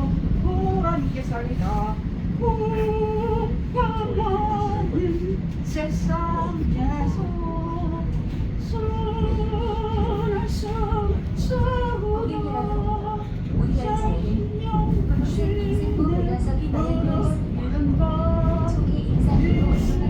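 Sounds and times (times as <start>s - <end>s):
subway train rumble: 0.0s - 20.0s.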